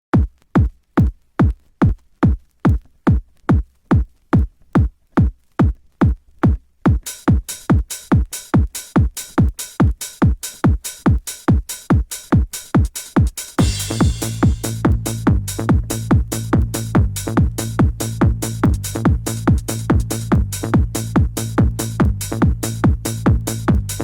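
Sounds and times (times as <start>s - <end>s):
electronic kick drum: 0.1s - 24.0s
bright hi-hats: 7.0s - 24.0s
high synth layer: 13.6s - 14.7s.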